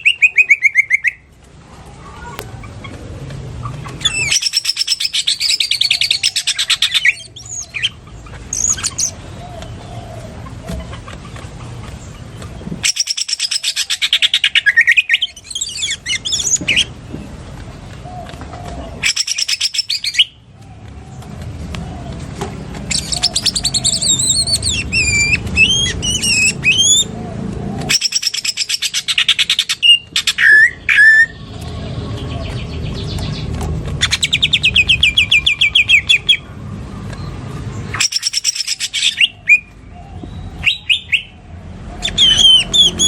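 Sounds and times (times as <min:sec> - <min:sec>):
bird chattering trills: 0:00.0 - 0:01.3, 0:02.2 - 0:17.2, 0:18.8 - 0:20.4, 0:22.8 - 0:27.2, 0:27.9 - 0:36.5, 0:37.2 - 0:43.0.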